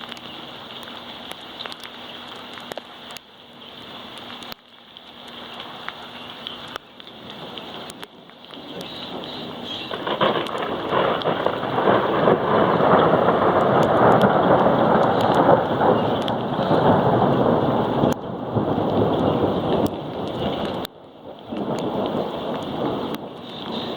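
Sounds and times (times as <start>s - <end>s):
rain pouring: 0.0s - 23.9s
raindrops ticking: 0.0s - 23.9s
thunder rumbling: 7.2s - 23.9s.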